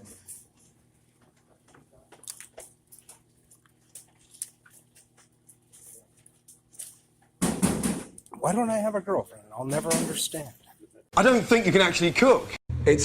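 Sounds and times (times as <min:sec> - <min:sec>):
person chewing food: 0:02.0 - 0:07.3.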